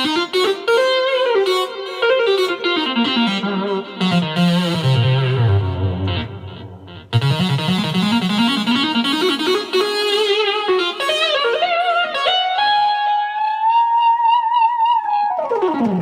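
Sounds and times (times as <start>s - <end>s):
synthesizer guitar-like lead: 0.0s - 16.0s.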